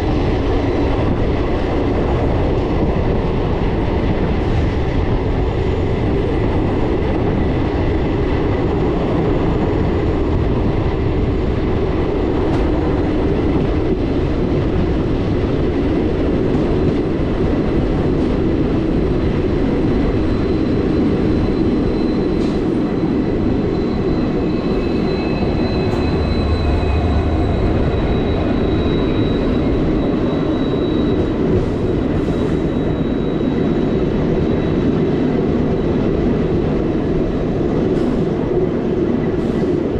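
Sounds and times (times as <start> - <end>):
train wheels rumbling on rails: 0.0 - 39.9
high wheel squeal: 17.5 - 36.0.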